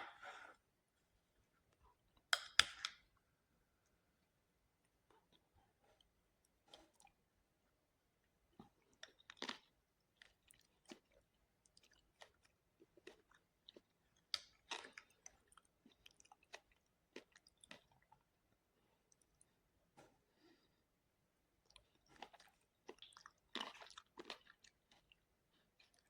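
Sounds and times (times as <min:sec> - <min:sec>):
chewing and biting: 0:08.6 - 0:18.2, 0:21.7 - 0:26.0.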